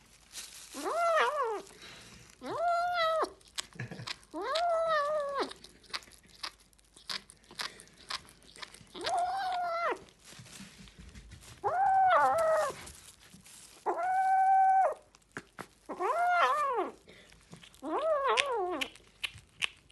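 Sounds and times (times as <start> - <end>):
kitten meowing: 0.8 - 1.6, 2.4 - 3.4, 4.4 - 5.6, 8.9 - 10.0, 11.6 - 12.8, 13.9 - 15.0, 15.9 - 17.0, 17.8 - 18.9.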